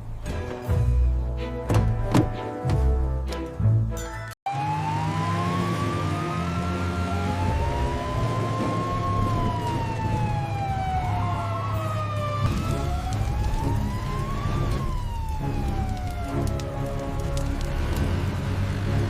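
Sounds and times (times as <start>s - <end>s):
siren wailing: 4.5s - 17.4s.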